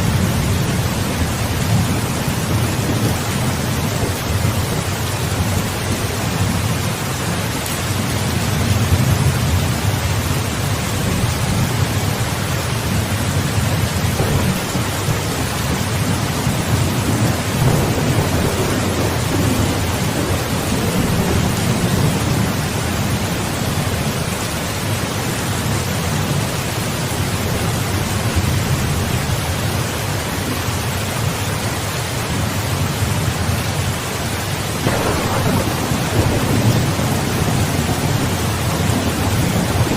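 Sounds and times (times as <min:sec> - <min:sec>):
low rolling thunder: 0:00.0 - 0:25.0, 0:34.8 - 0:39.9
heavy rain hissing: 0:00.0 - 0:39.9.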